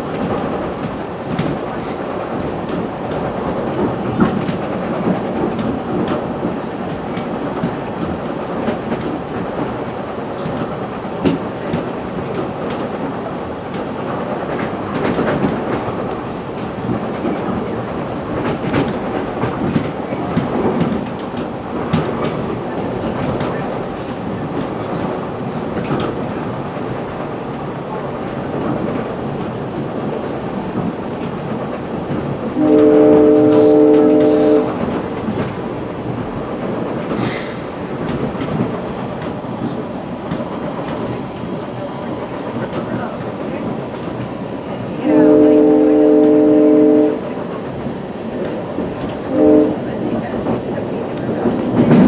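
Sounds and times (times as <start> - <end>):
train rumble and wheel clatter: 0.0 - 52.0
train horn: 32.6 - 35.0, 45.0 - 47.3, 49.3 - 50.0.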